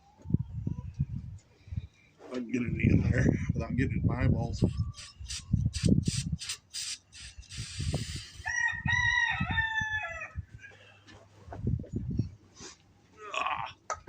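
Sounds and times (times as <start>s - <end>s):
aerosol spray hiss: 5.0s - 8.4s
rooster crowing: 8.4s - 10.7s.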